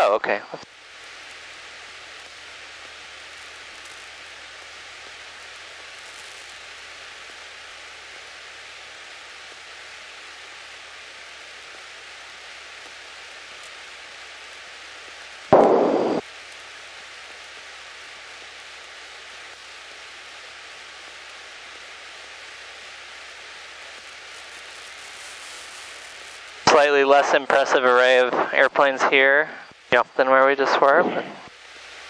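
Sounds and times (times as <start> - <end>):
short loud burst: 15.5 - 16.2
aircraft cabin hiss: 24.4 - 31.6.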